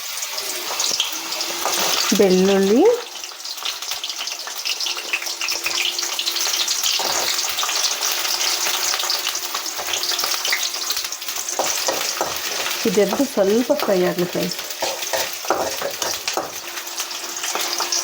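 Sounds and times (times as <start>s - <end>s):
garlic sizzling in hot oil: 0.0s - 18.0s
spatula knocking against pan: 11.5s - 13.9s, 14.8s - 16.6s.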